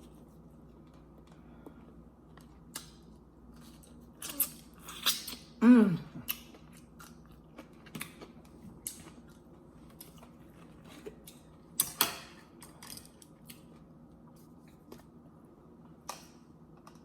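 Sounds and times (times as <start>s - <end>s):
chewing crunches: 6.2s - 11.5s.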